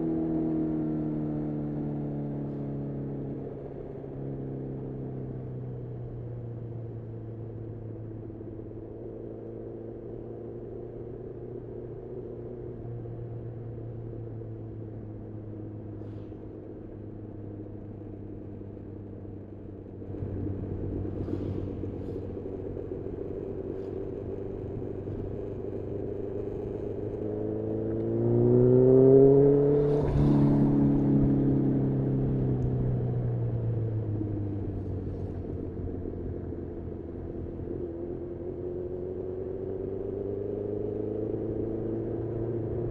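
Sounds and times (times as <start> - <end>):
motorcycle engine revving: 20.1 - 32.2.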